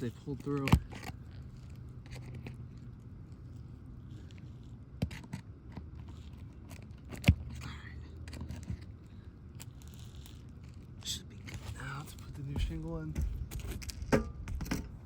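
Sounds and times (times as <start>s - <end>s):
steady low hum: 0.0s - 15.0s
scraping on shingles: 11.4s - 15.0s.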